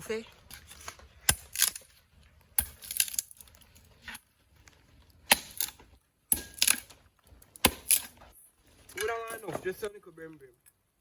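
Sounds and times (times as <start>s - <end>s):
firewood knocking and snapping: 0.5s - 9.9s.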